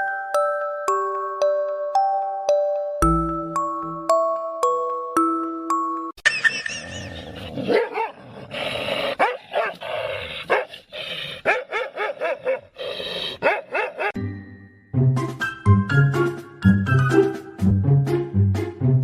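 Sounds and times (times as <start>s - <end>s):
dog barking and yelping: 6.7s - 14.2s.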